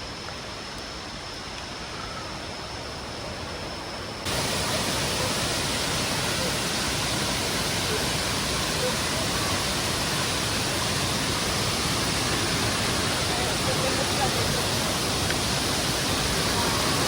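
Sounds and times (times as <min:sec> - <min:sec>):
mountain stream rushing: 0:04.2 - 0:17.0.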